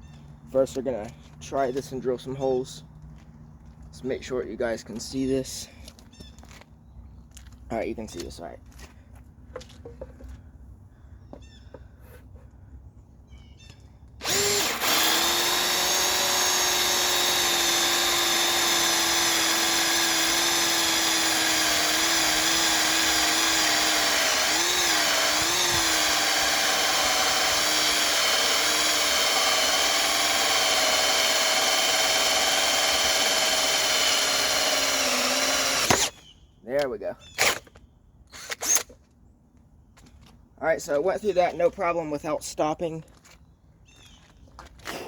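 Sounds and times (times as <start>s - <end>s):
cordless drill boring through wood: 14.2s - 36.3s, 38.3s - 38.9s.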